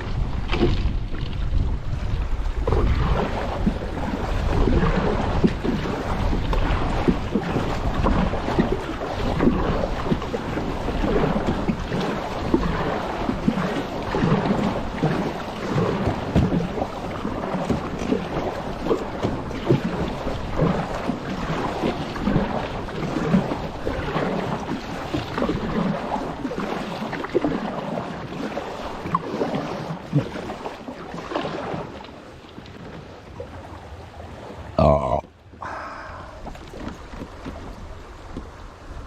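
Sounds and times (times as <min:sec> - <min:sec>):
wind buffeting microphone: 0:00.0 - 0:27.7
water splashing against kayak: 0:00.0 - 0:39.0.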